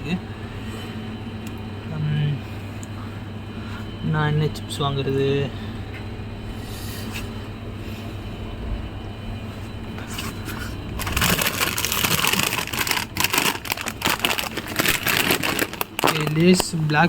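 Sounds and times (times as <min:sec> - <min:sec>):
low background hum: 0:00.0 - 0:17.0
crisp packet crinkling: 0:10.9 - 0:17.0.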